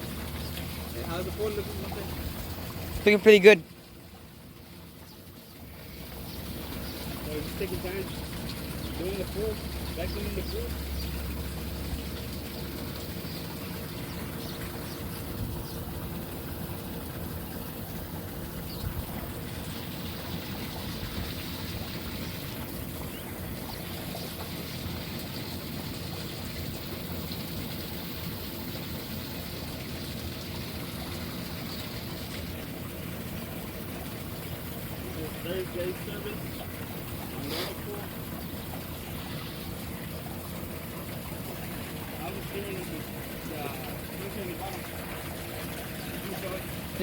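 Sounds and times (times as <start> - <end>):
low pump hum: 0.0 - 47.0
moving water trickling: 0.0 - 47.0.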